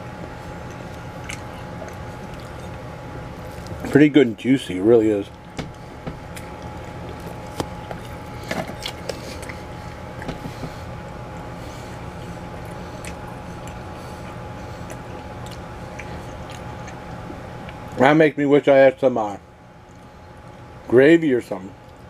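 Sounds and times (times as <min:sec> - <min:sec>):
low hum: 0:00.0 - 0:18.4
person chewing food: 0:00.2 - 0:03.9, 0:05.3 - 0:18.0.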